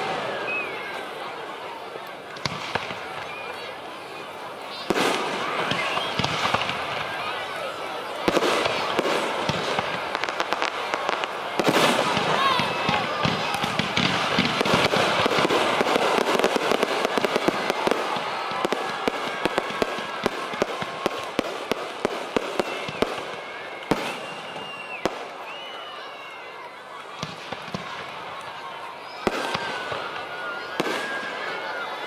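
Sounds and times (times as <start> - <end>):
fireworks crackling bangs: 0.0 - 25.9, 26.9 - 32.0.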